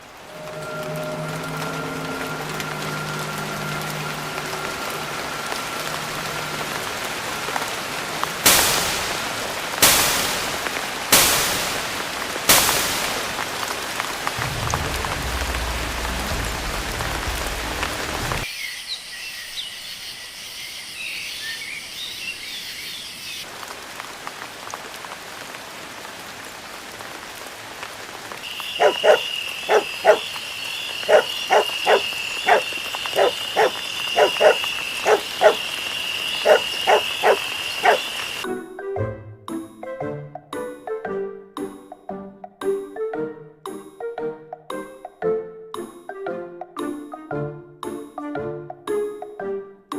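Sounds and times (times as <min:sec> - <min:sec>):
steady rain: 0:00.0 - 0:18.5, 0:21.0 - 0:38.5
low thunder rumble: 0:14.4 - 0:18.4
croaking animal calls: 0:28.5 - 0:38.4
high insect chirring: 0:28.5 - 0:38.4.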